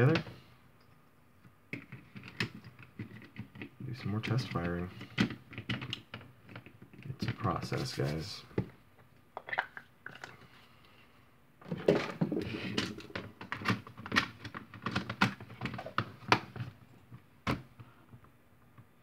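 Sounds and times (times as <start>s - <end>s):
plastic parts clicking: 5.0s - 7.4s.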